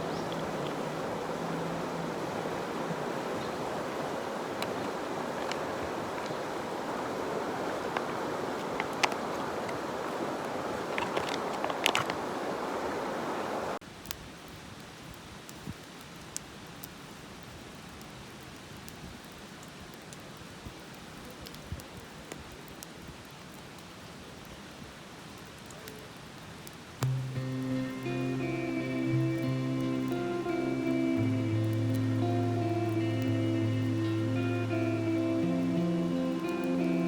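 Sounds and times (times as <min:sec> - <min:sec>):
campfire crackling and popping: 0:00.0 - 0:12.6, 0:13.8 - 0:37.0
soft music: 0:27.0 - 0:37.0.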